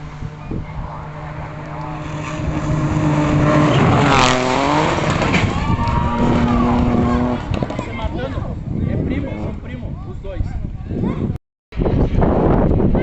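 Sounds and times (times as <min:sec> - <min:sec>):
rally car engine running hard: 0:00.0 - 0:07.9.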